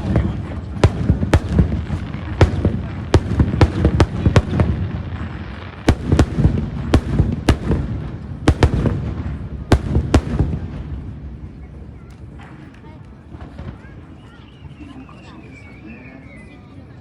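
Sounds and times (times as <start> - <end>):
fireworks bangs: 0.0 - 11.9.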